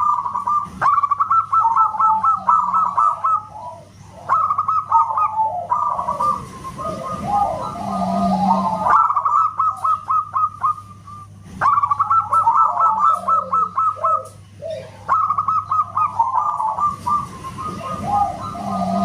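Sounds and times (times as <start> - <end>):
dove cooing: 0.0 - 19.0
steady low hum: 0.0 - 19.0.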